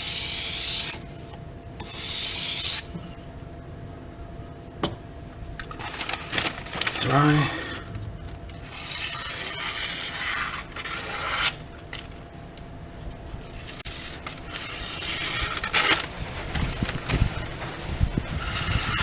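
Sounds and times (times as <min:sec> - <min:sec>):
knife scraping on sharpener: 0:08.8 - 0:11.6.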